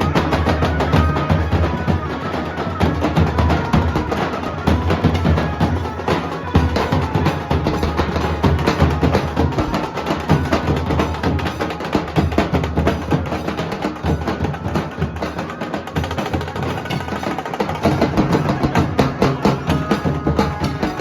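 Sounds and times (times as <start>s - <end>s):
fast dhol drumming: 0.0s - 21.0s.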